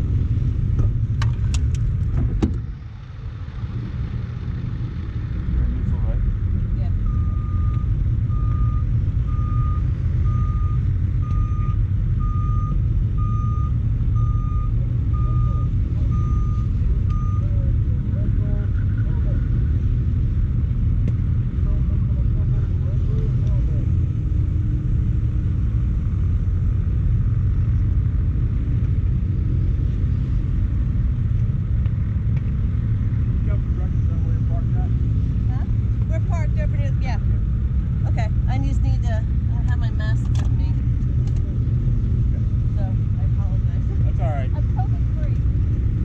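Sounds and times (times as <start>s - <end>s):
engine rumbling: 0.0s - 46.0s
reversing alarm beeping: 7.0s - 17.7s.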